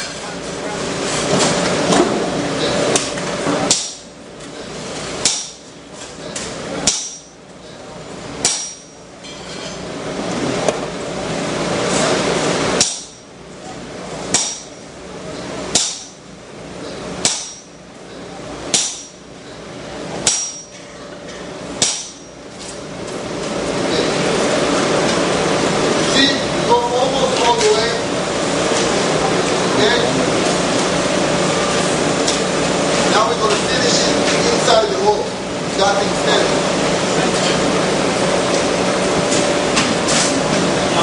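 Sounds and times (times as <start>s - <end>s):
hammer striking hot steel: 3.7s - 4.0s, 5.2s - 5.6s, 6.8s - 7.4s, 8.4s - 9.5s, 12.8s - 13.3s, 14.3s - 14.8s, 15.7s - 16.2s, 17.2s - 17.8s, 18.7s - 19.3s, 20.2s - 20.8s, 21.8s - 22.4s.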